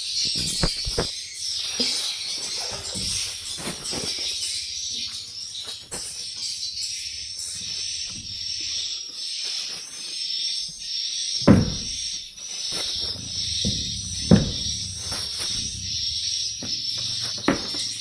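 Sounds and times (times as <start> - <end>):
swiftlets twittering: 4.6 - 18.0
loud thump: 11.5 - 12.0, 13.1 - 17.9.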